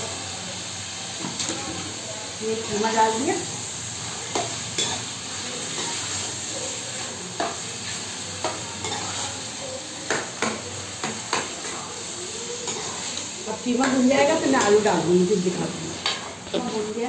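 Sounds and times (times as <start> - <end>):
meat sizzling in a pot: 0.0 - 17.0.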